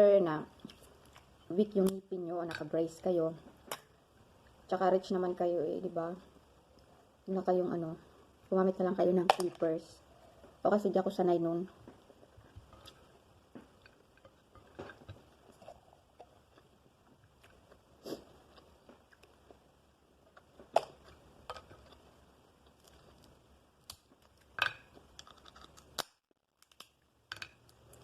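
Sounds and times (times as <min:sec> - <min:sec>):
crab shell cracking: 0:22.7 - 0:28.0.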